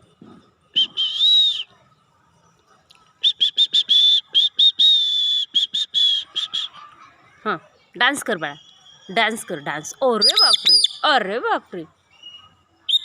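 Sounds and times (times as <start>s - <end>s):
parrot calling shrilly: 10.2s - 11.1s.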